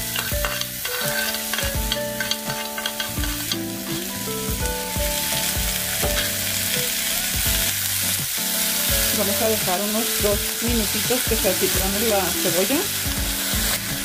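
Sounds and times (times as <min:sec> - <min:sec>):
pork rinds sizzling in lard: 0:00.0 - 0:14.0.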